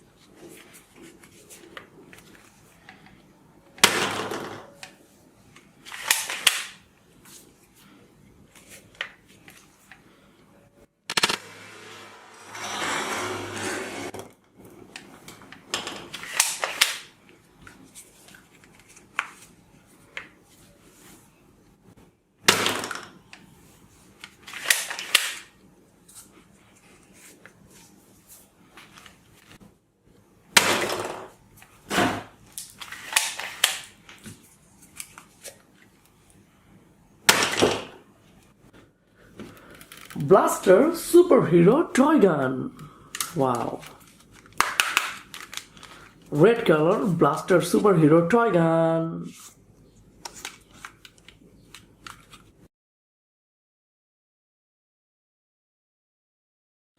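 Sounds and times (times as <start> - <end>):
plastic packaging rustling: 43.2 - 47.2.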